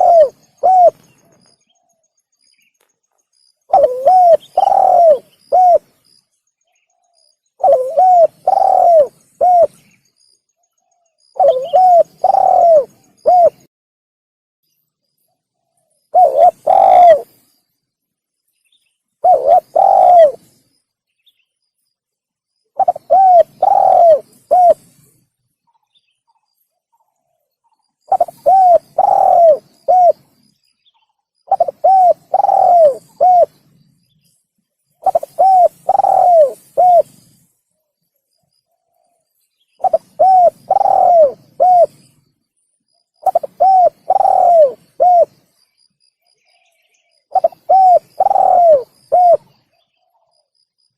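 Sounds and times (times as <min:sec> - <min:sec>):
dove cooing: 0:00.0 - 0:01.3, 0:03.7 - 0:06.0, 0:07.6 - 0:09.8, 0:11.3 - 0:13.7, 0:16.1 - 0:17.4, 0:19.2 - 0:20.5, 0:22.8 - 0:25.1, 0:28.1 - 0:30.4, 0:31.5 - 0:33.7, 0:35.0 - 0:37.4, 0:39.8 - 0:42.1, 0:43.2 - 0:45.4, 0:47.3 - 0:50.1.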